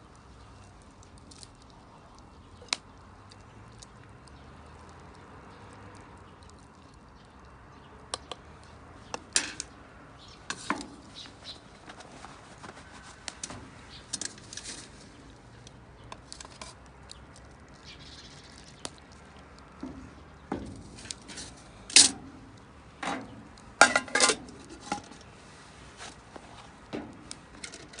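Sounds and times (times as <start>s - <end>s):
cooking gear clinking and knocking: 23.8s - 25.2s, 27.5s - 28.0s.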